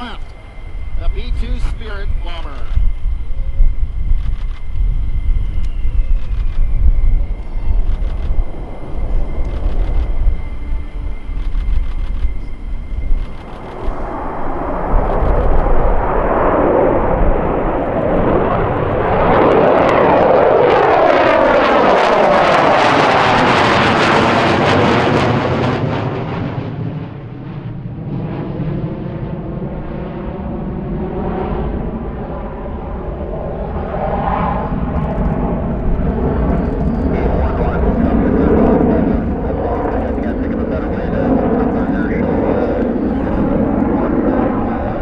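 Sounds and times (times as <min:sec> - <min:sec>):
jet aircraft flying past: 0:00.0 - 0:45.0.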